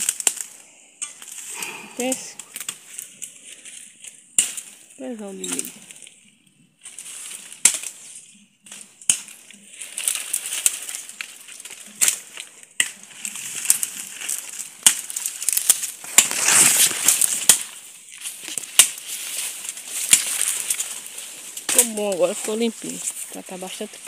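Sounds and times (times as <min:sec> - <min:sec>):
branches and leaves rustling: 0:00.0 - 0:24.0
twigs snapping: 0:00.0 - 0:24.0.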